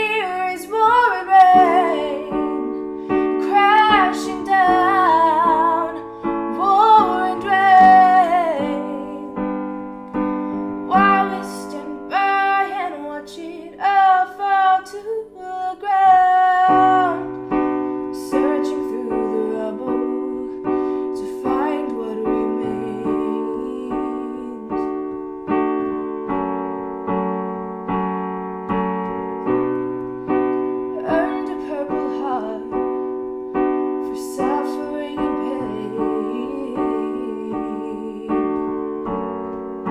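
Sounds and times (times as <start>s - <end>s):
woman singing: 0.0s - 9.6s, 10.8s - 25.0s, 30.9s - 33.0s, 34.0s - 39.1s
piano chords: 0.0s - 39.9s.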